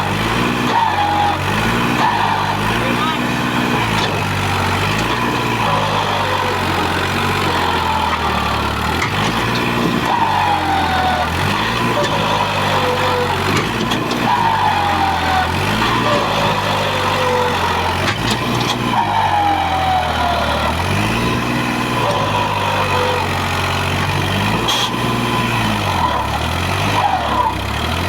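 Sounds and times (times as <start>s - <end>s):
tractor diesel engine under load: 0.0s - 28.0s.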